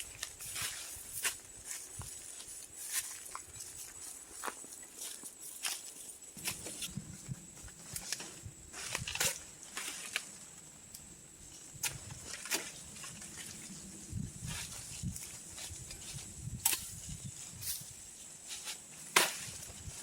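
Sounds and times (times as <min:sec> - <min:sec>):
dry undergrowth snapping and crackling: 0:08.8 - 0:10.3.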